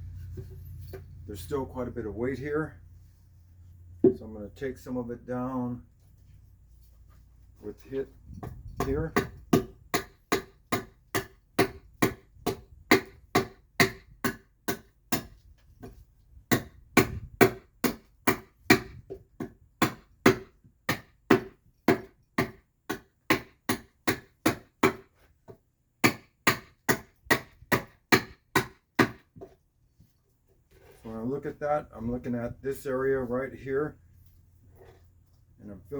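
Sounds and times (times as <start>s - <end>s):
adze chopping wood: 8.4s - 25.1s, 26.0s - 29.5s.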